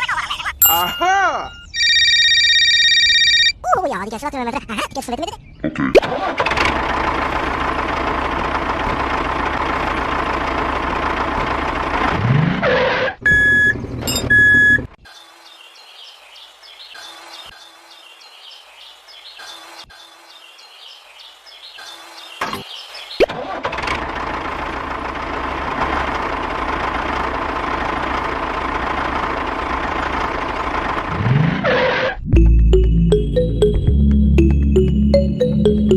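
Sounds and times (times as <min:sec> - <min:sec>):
short high electronic beeps: 0:00.6 - 0:02.0.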